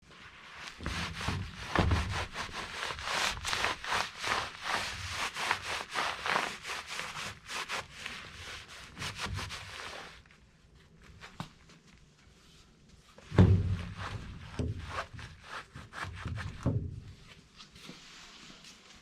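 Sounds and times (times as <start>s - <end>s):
scrubbing a grimy surface by hand: 0.2s - 10.4s, 13.6s - 16.6s.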